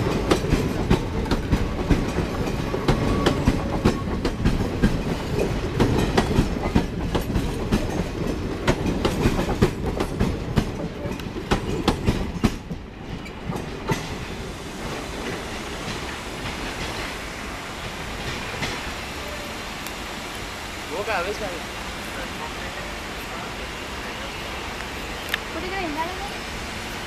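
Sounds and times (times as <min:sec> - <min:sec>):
train wheels clattering over joints: 0:00.0 - 0:19.1
receding train noise: 0:00.0 - 0:27.0.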